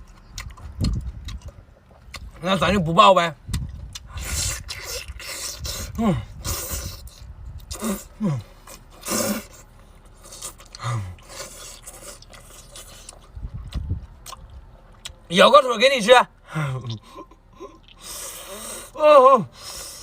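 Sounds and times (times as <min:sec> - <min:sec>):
chewing and mouth noises: 0:00.0 - 0:15.3, 0:16.7 - 0:19.0
person grunting: 0:06.0 - 0:06.3, 0:07.8 - 0:08.5.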